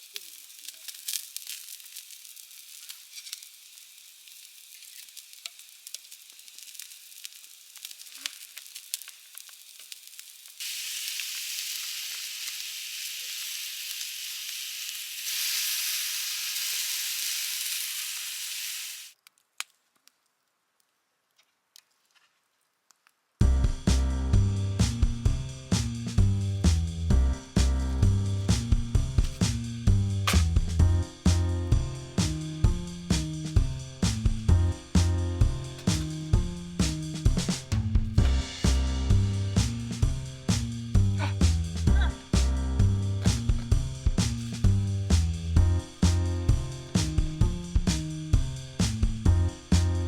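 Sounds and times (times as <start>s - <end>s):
fish sizzling in a hot pan: 0.0s - 19.2s
music with drums: 23.4s - 50.0s.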